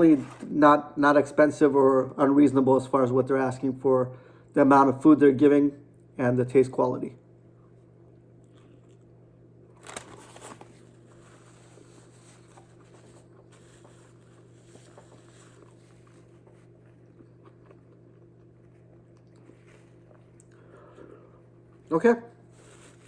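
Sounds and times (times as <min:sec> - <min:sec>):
steady low hum: 0:00.0 - 0:23.0
chewing with small crunches: 0:07.6 - 0:23.0.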